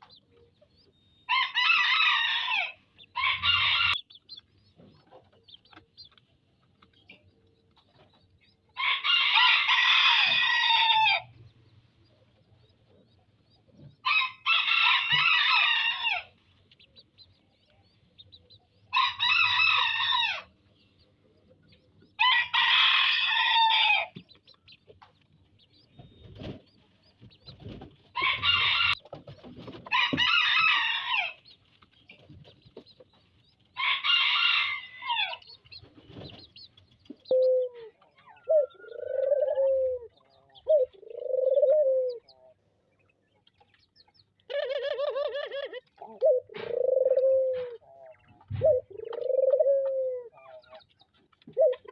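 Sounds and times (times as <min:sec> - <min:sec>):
rooster crowing: 0:01.3 - 0:04.0, 0:08.8 - 0:11.3, 0:14.1 - 0:16.3, 0:18.9 - 0:20.5, 0:22.2 - 0:24.1, 0:29.9 - 0:31.4, 0:33.8 - 0:35.4
dove cooing: 0:37.2 - 0:42.5, 0:44.5 - 0:50.8, 0:51.5 - 0:51.9.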